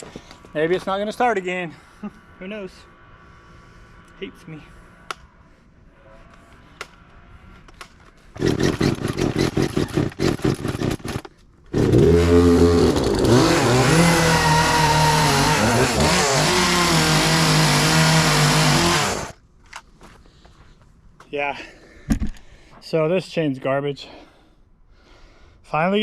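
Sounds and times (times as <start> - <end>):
gas chainsaw starting and running: 8.4 - 19.4.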